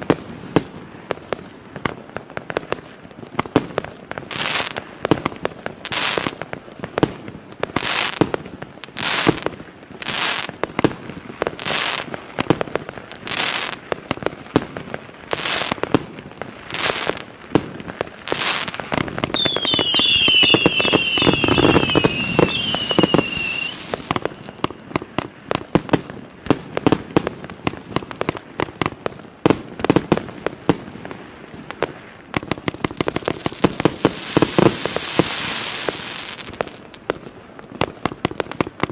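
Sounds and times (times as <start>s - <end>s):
firework crackling pops: 0.0s - 38.9s
firework falling whistles: 19.3s - 24.7s
firework shots launching: 19.4s - 24.2s.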